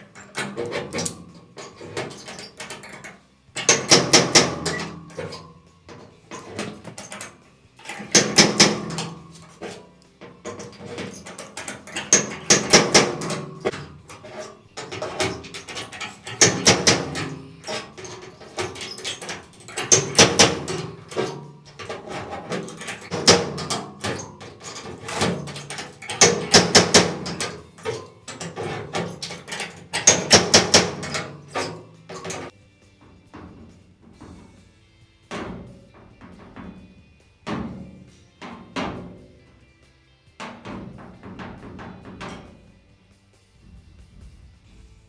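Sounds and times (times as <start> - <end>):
slide hammer clacking on metal: 0.0 - 39.7.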